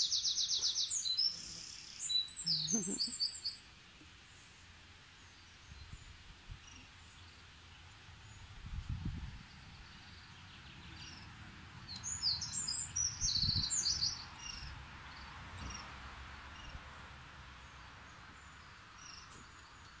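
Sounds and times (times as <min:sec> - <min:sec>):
faint outdoor background noise: 0:00.0 - 0:20.0.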